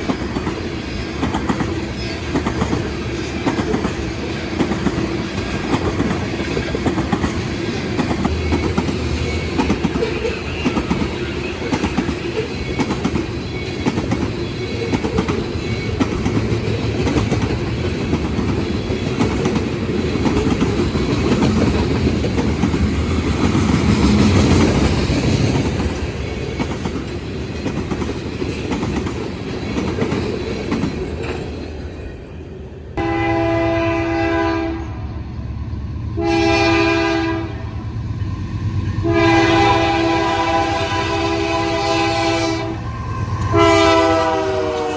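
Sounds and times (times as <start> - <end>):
train wheels clattering: 0.0 - 32.0
locomotive horn chord: 33.0 - 35.1, 36.2 - 37.7, 39.0 - 44.9.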